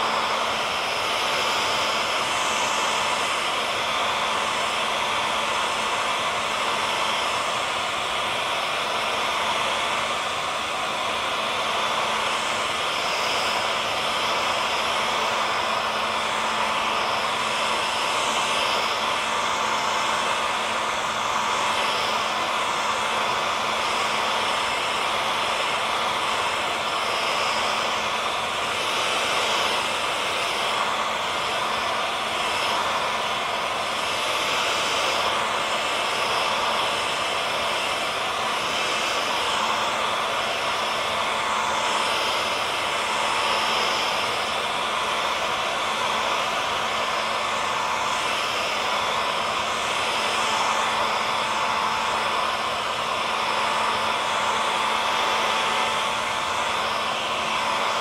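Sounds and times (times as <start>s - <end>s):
hair dryer blowing: 0.0s - 58.0s.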